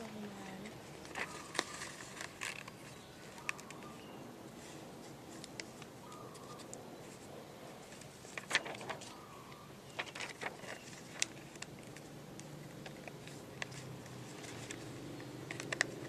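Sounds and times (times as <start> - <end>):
paper crackling being folded: 0.0 - 16.0.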